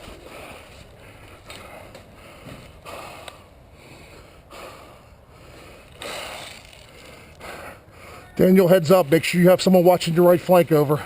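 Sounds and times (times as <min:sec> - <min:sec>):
footsteps: 0:00.0 - 0:03.4
gear rustling: 0:05.9 - 0:07.1.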